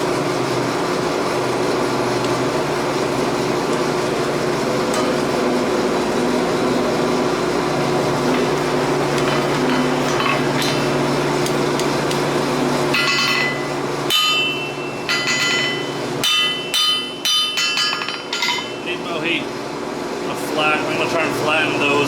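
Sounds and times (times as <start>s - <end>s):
forge blower humming: 0.0s - 22.0s
hammer ringing on anvil: 12.9s - 19.0s.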